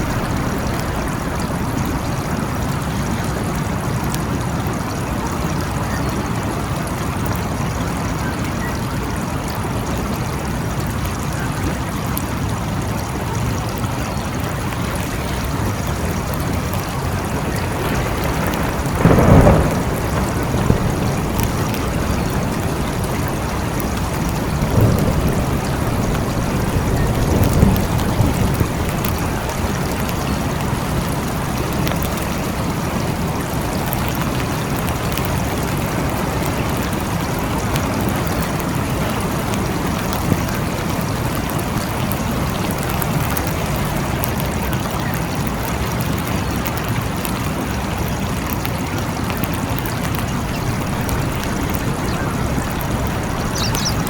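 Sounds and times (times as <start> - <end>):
rumbles of thunder: 0.0 - 4.3, 15.0 - 42.4, 50.1 - 54.0
thunder clap: 0.0 - 4.4, 14.9 - 41.8, 49.5 - 54.0
heavy rain falling: 0.0 - 54.0.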